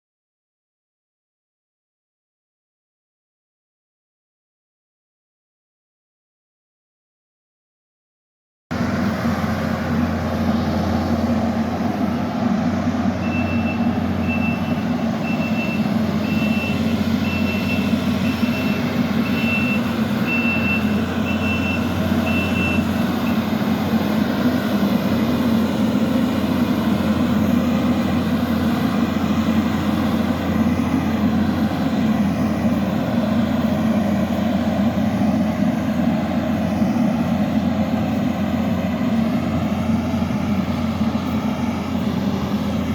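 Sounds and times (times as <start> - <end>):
diesel engine running: 8.7 - 42.9
backup alarm beeping: 13.2 - 23.4.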